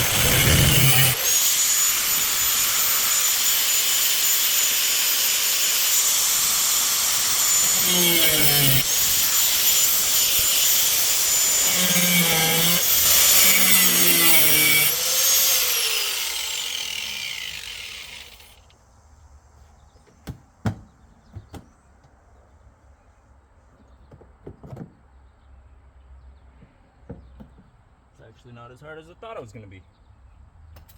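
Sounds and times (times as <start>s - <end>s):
angle grinder cutting sheet steel: 0.0s - 18.6s.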